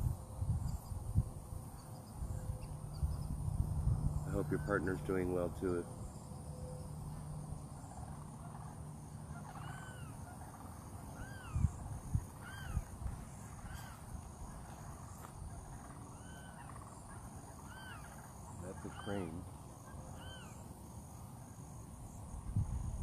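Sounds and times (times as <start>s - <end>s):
crane calling: 4.1s - 21.9s.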